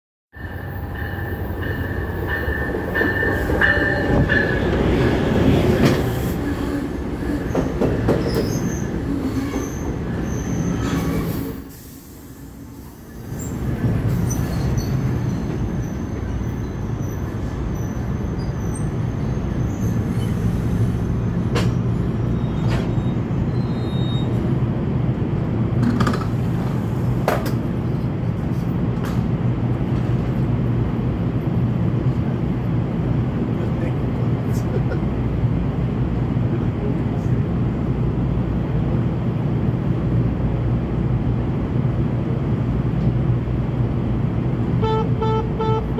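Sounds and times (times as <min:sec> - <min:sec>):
steady low train hum: 0:00.3 - 0:45.9
train pulling into station: 0:00.3 - 0:45.9
wheels and brakes squealing: 0:07.4 - 0:11.9, 0:13.1 - 0:20.9, 0:21.7 - 0:24.4.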